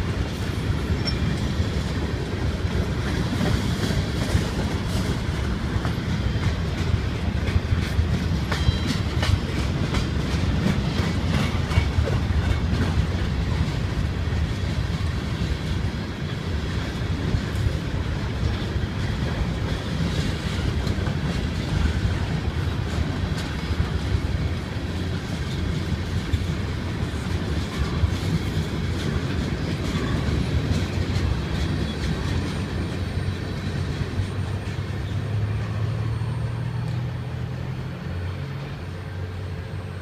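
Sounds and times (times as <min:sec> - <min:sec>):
wheels clicking over rails: 0:00.0 - 0:35.5
freight train passing: 0:00.0 - 0:40.0.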